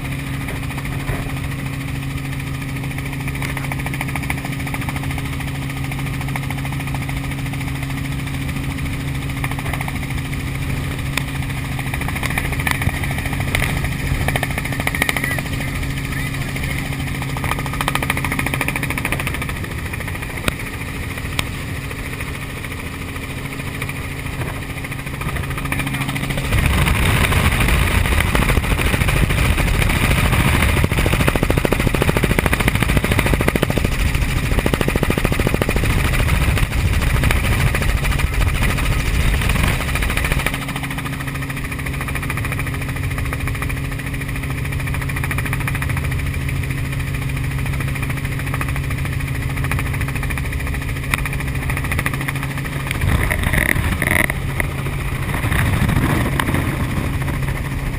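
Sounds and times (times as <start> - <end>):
helicopter engine and rotor hum: 0.0 - 57.9
rough rushing noise: 24.1 - 40.4, 52.4 - 57.9.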